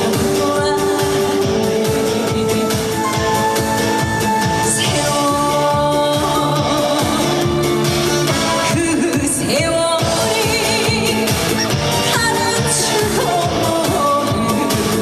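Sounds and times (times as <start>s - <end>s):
amplified backing track: 0.0s - 15.0s
woman singing: 0.0s - 15.0s.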